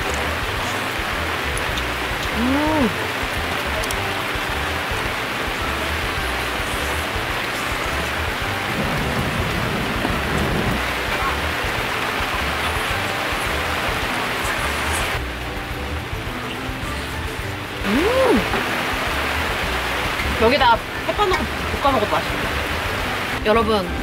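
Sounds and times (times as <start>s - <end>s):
steady rain falling: 0.0s - 24.0s
woman humming: 2.2s - 3.0s, 16.8s - 18.7s.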